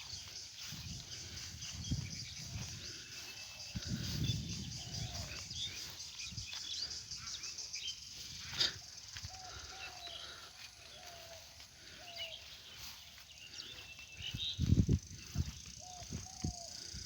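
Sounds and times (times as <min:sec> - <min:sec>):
birds chirping: 0:00.0 - 0:17.0
pulsing insect drone: 0:00.0 - 0:17.0.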